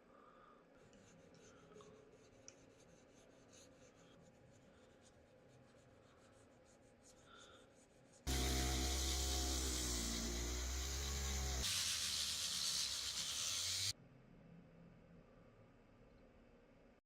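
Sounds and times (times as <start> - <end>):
faint scratching and rubbing: 0.8 - 8.3.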